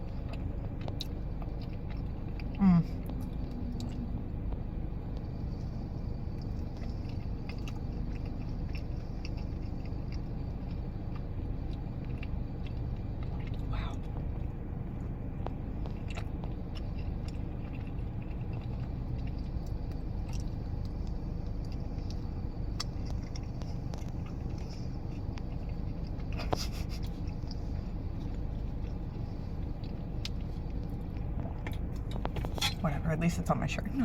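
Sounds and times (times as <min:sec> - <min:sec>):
chewing a cookie: 0:00.0 - 0:32.8
steady low rumble: 0:00.0 - 0:34.0.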